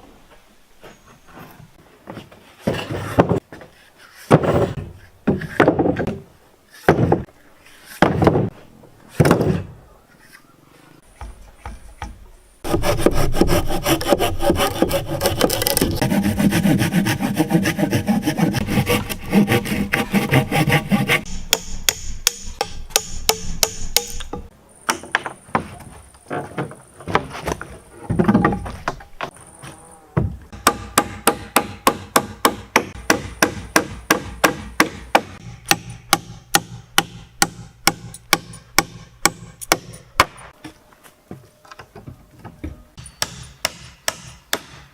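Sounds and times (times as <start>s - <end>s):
hand saw cutting wood: 12.6s - 21.7s.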